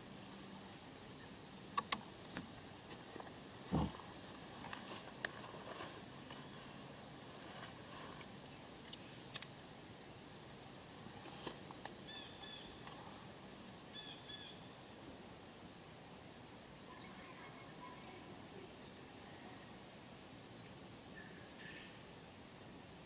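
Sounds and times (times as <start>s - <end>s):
faint sharp clicks: 1.7s - 2.5s, 8.4s - 9.5s.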